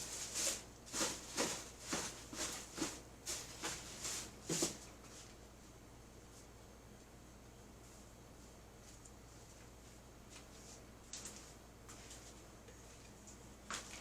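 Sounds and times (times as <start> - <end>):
short rustling scrapes: 0.0 - 5.3.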